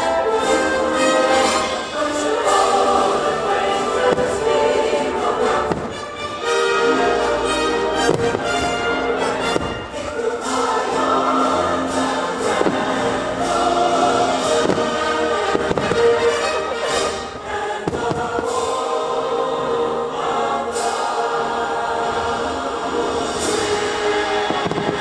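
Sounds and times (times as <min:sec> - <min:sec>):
choral and orchestral music: 0:00.0 - 0:25.0
fireworks popping and banging: 0:05.6 - 0:06.4, 0:08.0 - 0:10.6, 0:14.4 - 0:18.8, 0:24.5 - 0:25.0.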